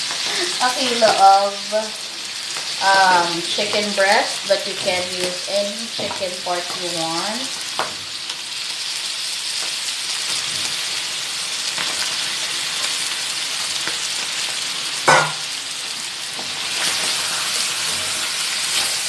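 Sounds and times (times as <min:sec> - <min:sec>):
food sizzling in a frying pan: 0:00.0 - 0:19.0
sharp metallic clank: 0:15.1 - 0:15.5.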